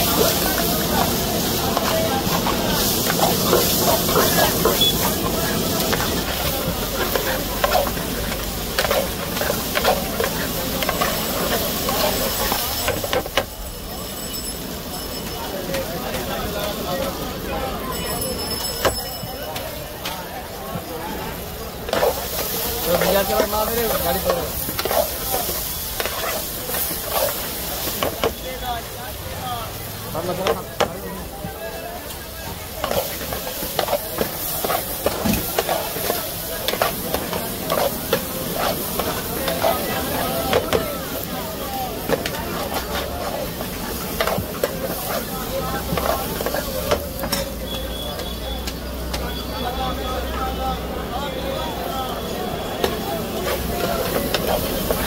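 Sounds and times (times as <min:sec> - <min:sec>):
eggs sizzling in a pan: 0:00.0 - 0:13.6, 0:20.4 - 0:31.3, 0:32.0 - 0:50.8, 0:51.8 - 0:55.0
spatula scraping and tapping metal: 0:05.8 - 0:13.5, 0:21.9 - 0:28.4, 0:32.8 - 0:40.8, 0:42.0 - 0:47.6.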